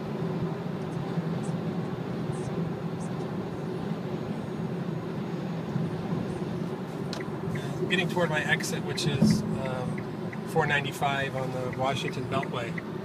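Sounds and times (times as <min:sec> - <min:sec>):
wind noise inside car: 0:00.0 - 0:13.0
tyre rumble inside car: 0:07.6 - 0:10.0.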